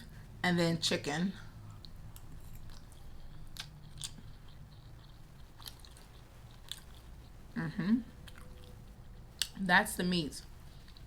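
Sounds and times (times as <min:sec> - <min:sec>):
person chewing noodles: 0:01.6 - 0:09.6.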